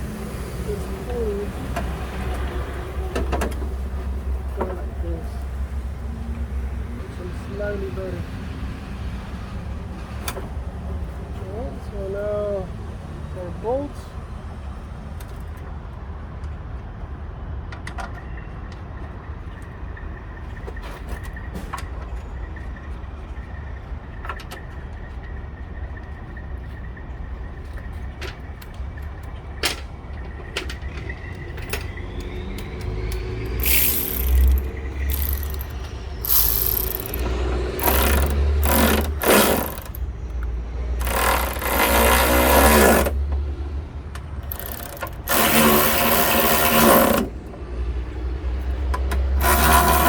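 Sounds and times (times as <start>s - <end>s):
metallic clicks of hand tools: 32.6s - 40.0s, 44.4s - 47.2s
harsh bursts of tool noise: 33.6s - 40.1s, 41.0s - 43.3s, 44.4s - 47.5s, 49.2s - 50.0s.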